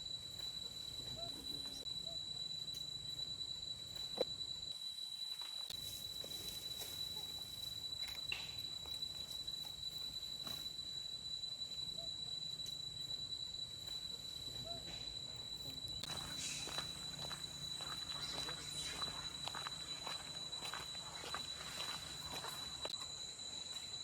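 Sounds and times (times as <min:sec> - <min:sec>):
higher insect hiss: 0:00.0 - 0:24.0
insects calling steady high tone: 0:00.0 - 0:24.0.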